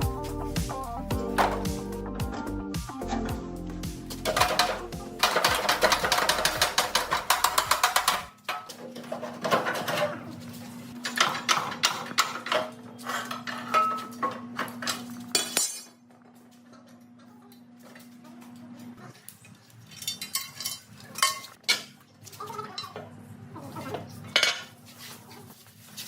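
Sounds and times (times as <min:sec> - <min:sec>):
metal tools clinking and knocking: 0:04.2 - 0:10.1, 0:11.0 - 0:16.0, 0:19.9 - 0:21.9.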